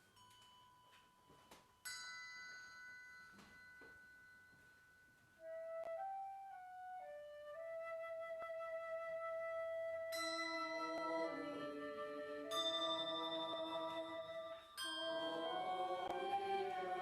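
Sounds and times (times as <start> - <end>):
flute-toned melody: 5.4 - 17.0.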